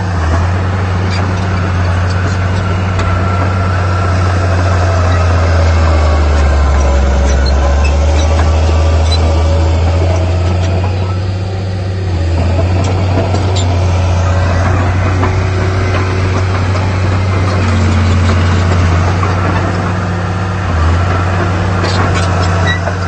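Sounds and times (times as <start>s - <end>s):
heavy diesel engine droning: 0.0s - 23.0s.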